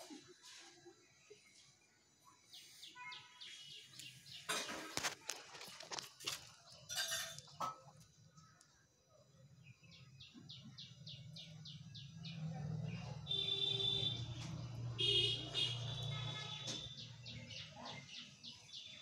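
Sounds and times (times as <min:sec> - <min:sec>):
bird chirping: 0:02.2 - 0:05.1, 0:08.3 - 0:19.0.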